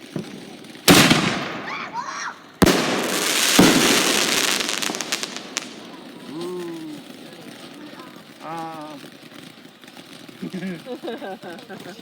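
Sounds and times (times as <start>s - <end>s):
firework thump: 0.0s - 7.9s
firework bang: 0.0s - 8.4s
quick crackling pops: 0.0s - 10.5s
firework hiss: 0.0s - 12.0s.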